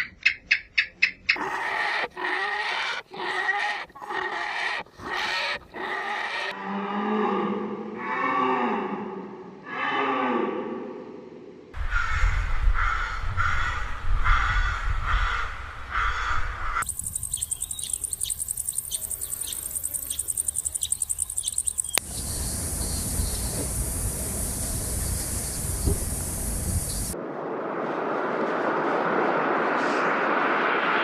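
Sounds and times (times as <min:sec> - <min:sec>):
crow cawing: 0:11.8 - 0:16.5
high-pitched insect trill: 0:16.8 - 0:27.2
even hiss: 0:16.9 - 0:27.2.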